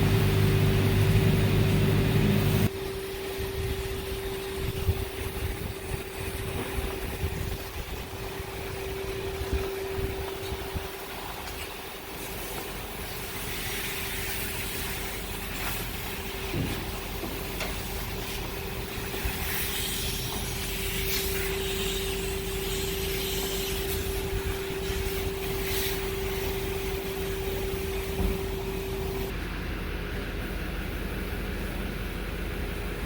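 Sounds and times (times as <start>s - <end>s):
pump hum: 0.0s - 33.0s
spray wand hissing: 12.2s - 29.3s.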